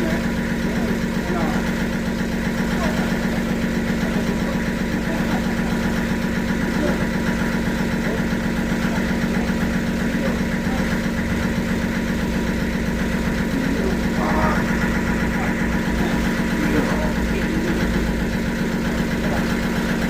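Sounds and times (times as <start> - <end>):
sawmill machinery drone: 0.0 - 20.0.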